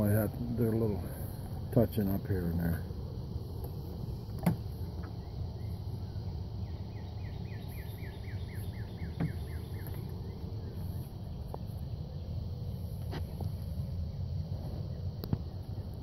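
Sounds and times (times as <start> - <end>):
bird chirping: 3.7 - 15.9.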